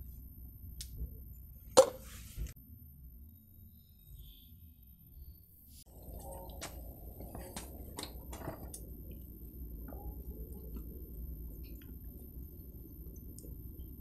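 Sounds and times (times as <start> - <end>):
low steady rumble: 5.8 - 14.0.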